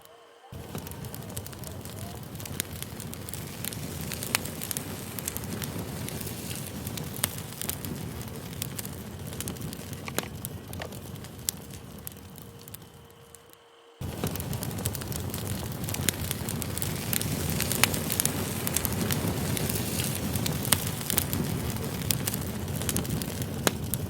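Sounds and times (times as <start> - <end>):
campfire crackling and popping: 0.5 - 24.0.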